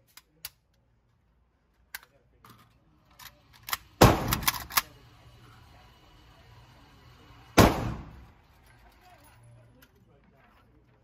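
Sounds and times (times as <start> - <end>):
rifle shot with ringing echo: 7.6 - 8.2.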